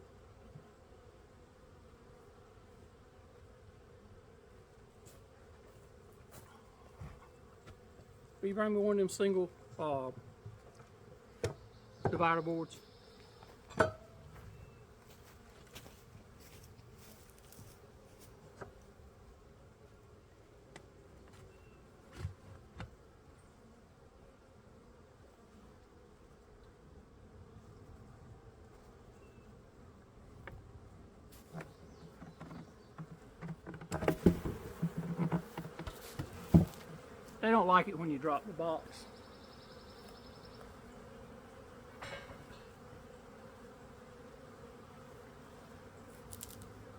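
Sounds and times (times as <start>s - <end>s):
honeybees buzzing: 0.0s - 46.9s
knocks of wooden hive parts: 31.4s - 37.3s
box dropped with loud thump: 33.9s - 36.9s.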